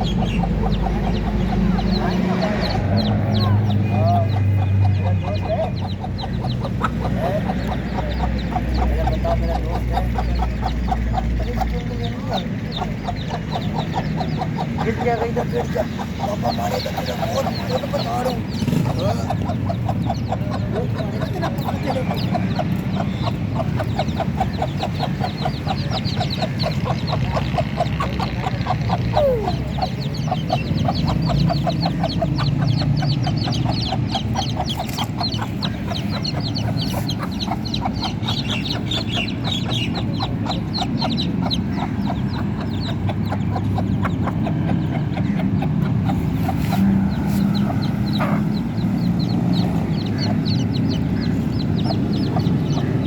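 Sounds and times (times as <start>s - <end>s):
chicks cheeping: 0.0s - 53.0s
hen clucking: 0.0s - 53.0s.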